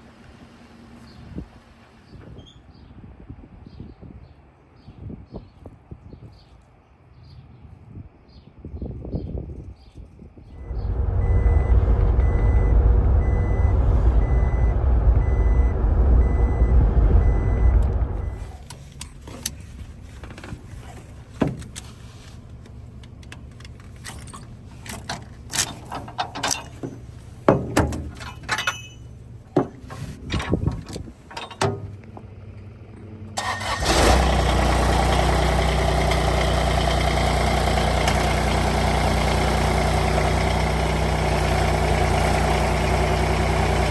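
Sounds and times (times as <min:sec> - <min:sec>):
engine starting up: 0:10.6 - 0:18.7, 0:33.4 - 0:36.0
vehicle engine running: 0:10.6 - 0:23.9, 0:34.1 - 0:43.9
metallic clanks and knocks: 0:24.1 - 0:32.0.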